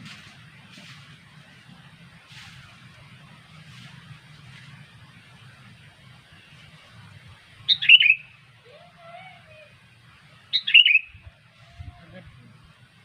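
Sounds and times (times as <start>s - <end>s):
steady low hum: 0.0s - 13.0s
bird calls: 7.7s - 9.4s, 10.4s - 11.4s.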